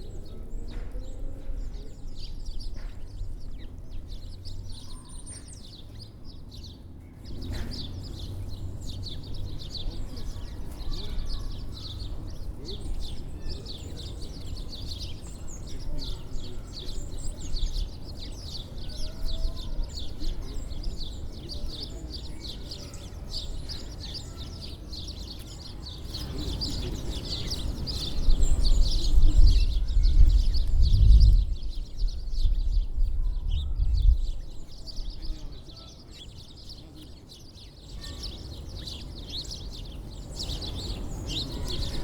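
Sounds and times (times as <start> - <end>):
small birds chirping: 0.0 - 42.0
low rumble: 29.5 - 34.3.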